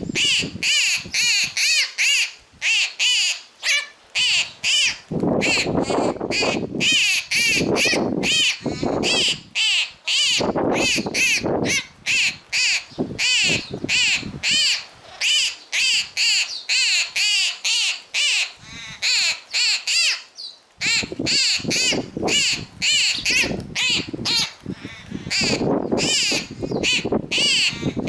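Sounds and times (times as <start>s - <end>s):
young bird begging calls: 0.0s - 28.0s.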